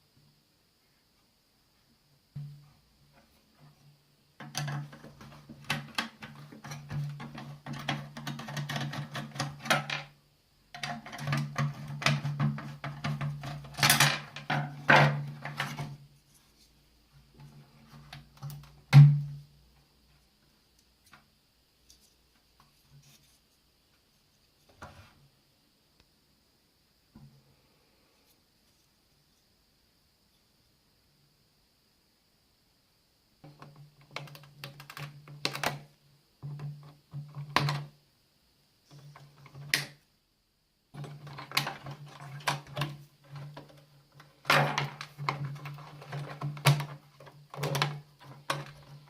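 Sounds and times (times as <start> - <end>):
plastic and metal parts rattling: 4.4 - 10.1, 10.8 - 16.0, 41.0 - 49.0.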